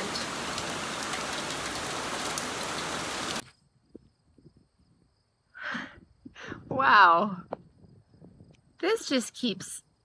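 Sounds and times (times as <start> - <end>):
heavy rain falling: 0.0 - 3.4
raindrop ticks: 0.0 - 3.5.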